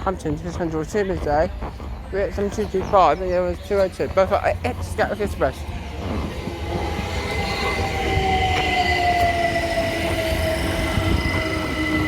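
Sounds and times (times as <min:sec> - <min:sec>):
electric train passing: 0:04.0 - 0:12.0.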